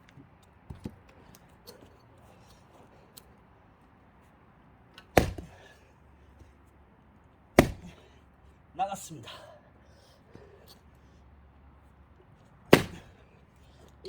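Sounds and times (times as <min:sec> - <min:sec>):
axe chopping log: 0:05.0 - 0:05.7, 0:07.6 - 0:08.1, 0:12.7 - 0:13.3.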